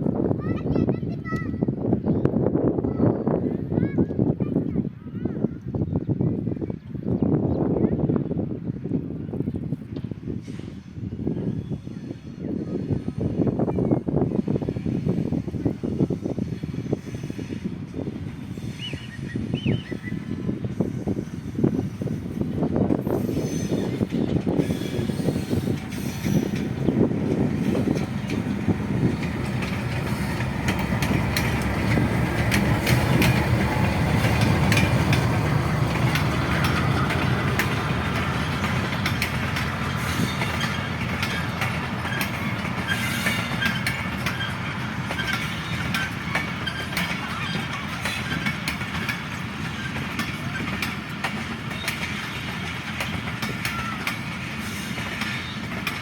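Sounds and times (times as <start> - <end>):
train coaches rumbling by: 0.0 - 56.0
wheels clicking over rail joints: 23.8 - 56.0.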